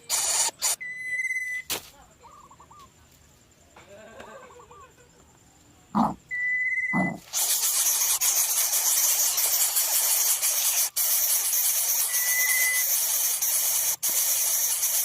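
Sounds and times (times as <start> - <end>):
bird nestlings hissing: 0.0 - 0.8, 7.0 - 15.0.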